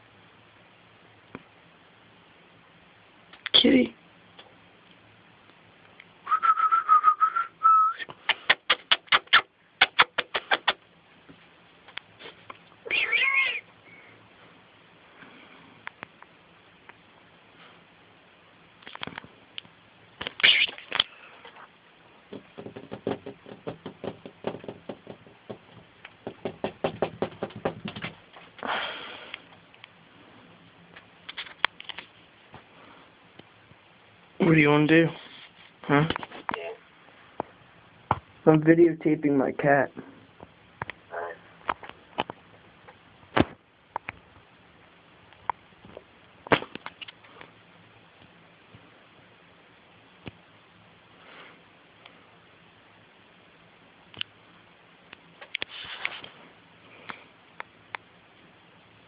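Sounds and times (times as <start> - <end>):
person whistling held note: 6.3 - 8.1
sharp clicking sounds: 8.0 - 10.8
light quick taps and knocks: 22.3 - 28.2
short rustle: 35.1 - 36.5, 55.6 - 56.6.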